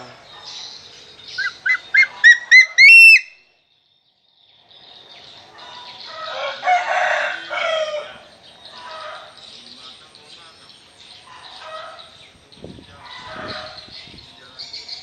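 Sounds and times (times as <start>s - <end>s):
bird of prey whistling calls: 1.4s - 3.4s.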